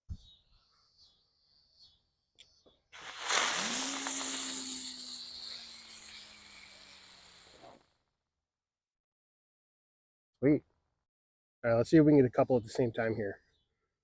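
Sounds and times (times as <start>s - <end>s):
fuse fizzing: 3.0s - 7.8s
firework spraying hiss: 3.0s - 7.9s.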